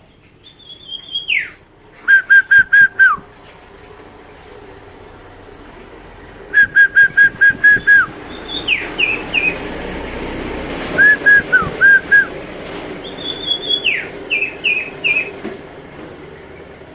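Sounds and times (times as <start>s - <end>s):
songbird singing whistled phrases: 0.4s - 3.2s, 6.6s - 9.6s, 11.0s - 12.3s, 13.0s - 15.4s.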